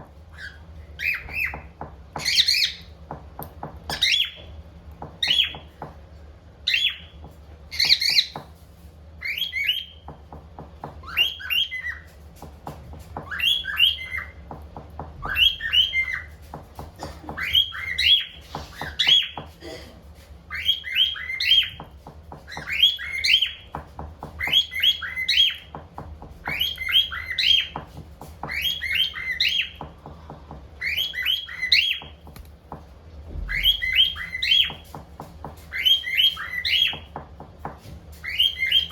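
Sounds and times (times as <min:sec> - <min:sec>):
cockatiel whistling: 0:13.2 - 0:14.4, 0:15.2 - 0:16.3, 0:20.5 - 0:21.9, 0:22.5 - 0:23.6, 0:26.4 - 0:27.8, 0:30.8 - 0:32.2, 0:33.4 - 0:34.8, 0:38.2 - 0:38.9.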